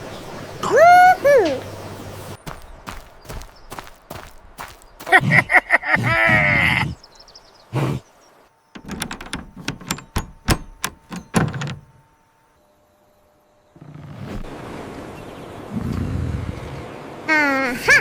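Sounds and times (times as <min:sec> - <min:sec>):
sharp clicks and knocks: 0:08.8 - 0:12.0.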